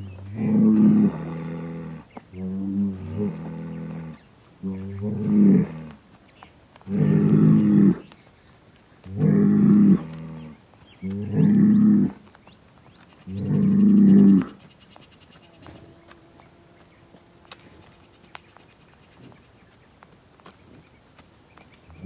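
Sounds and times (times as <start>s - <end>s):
bull bellowing: 0.0s - 6.0s, 6.8s - 8.1s, 9.0s - 12.2s, 13.2s - 14.6s, 15.4s - 18.6s.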